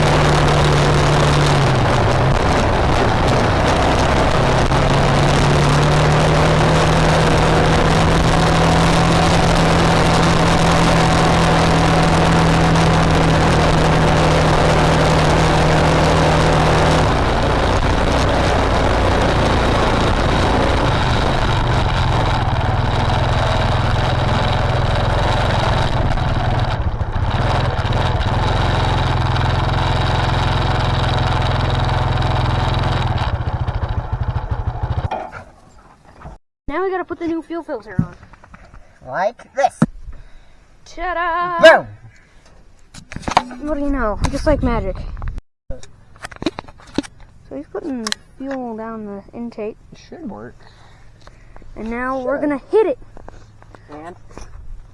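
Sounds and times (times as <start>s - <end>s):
motor running: 0.0s - 35.2s.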